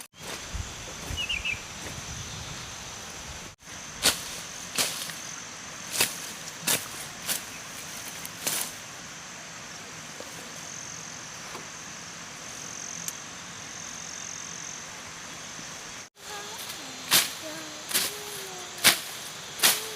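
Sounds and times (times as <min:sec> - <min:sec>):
insects chirring: 0:00.1 - 0:19.9.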